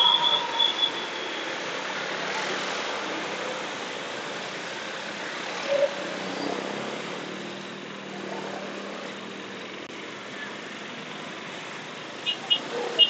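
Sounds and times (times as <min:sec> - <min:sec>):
brief loud tone: 0:00.0 - 0:01.5
road noise: 0:00.0 - 0:13.0.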